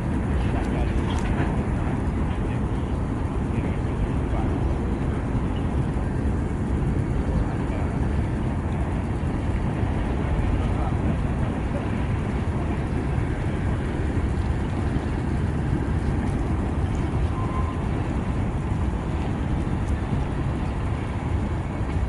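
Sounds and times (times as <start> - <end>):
freight train rumbling: 0.0 - 22.0.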